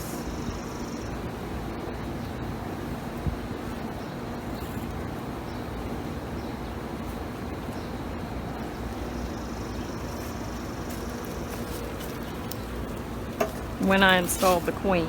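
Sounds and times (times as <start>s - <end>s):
honeybees buzzing: 0.0s - 15.0s
rushing background noise: 0.0s - 15.0s.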